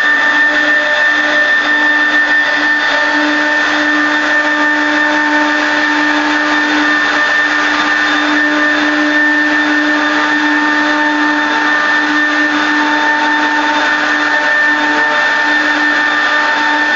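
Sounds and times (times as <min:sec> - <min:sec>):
router spindle whining carving wood: 0:00.0 - 0:16.9.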